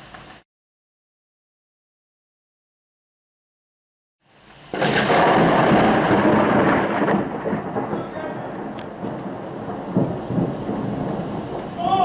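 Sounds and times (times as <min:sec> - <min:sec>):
rain hissing: 0:04.2 - 0:12.0
thunderclap rumbling: 0:04.7 - 0:12.0.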